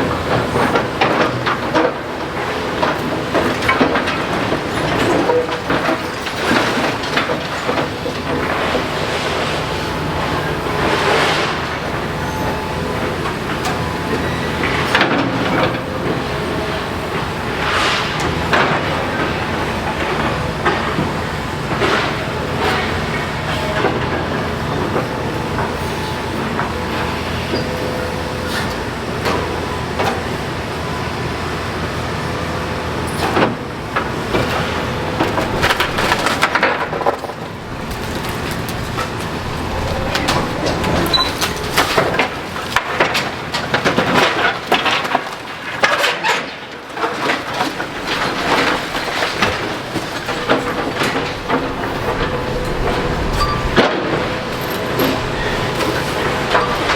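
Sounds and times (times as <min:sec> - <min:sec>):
excavator engine running: 0:00.0 - 0:45.9, 0:46.6 - 0:56.9
rubble crunching and scraping: 0:34.1 - 0:56.9.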